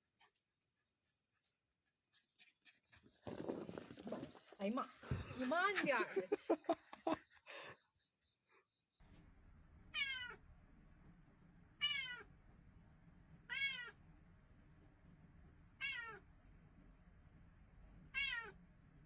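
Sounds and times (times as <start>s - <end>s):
cat meowing: 9.9s - 10.4s, 11.8s - 12.3s, 13.5s - 14.0s, 15.8s - 16.2s, 18.1s - 18.6s.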